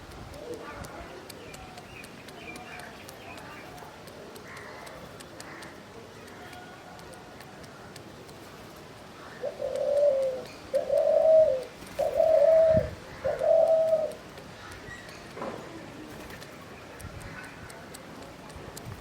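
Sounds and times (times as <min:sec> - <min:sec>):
dove cooing: 0:09.3 - 0:14.3.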